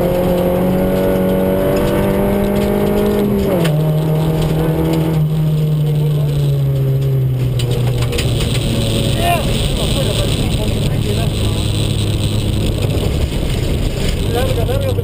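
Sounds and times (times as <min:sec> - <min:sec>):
rally car engine at high revs: 0:00.0 - 0:15.0
tyre and road noise on gravel: 0:00.0 - 0:15.0.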